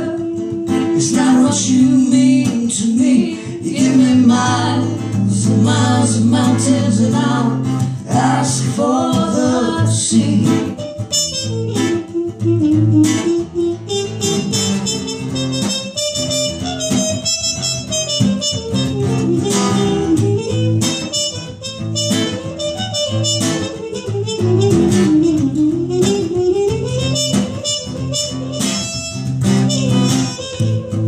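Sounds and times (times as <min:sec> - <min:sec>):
sustained melody line: 0:00.0 - 0:15.6
strummed acoustic guitar: 0:00.0 - 0:31.0.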